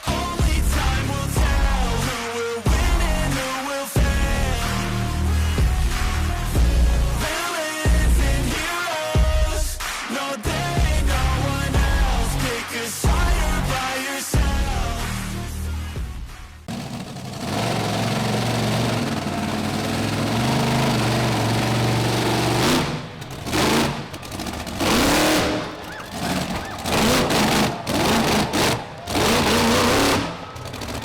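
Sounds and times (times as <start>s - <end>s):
monster truck engine revving: 16.7s - 31.0s.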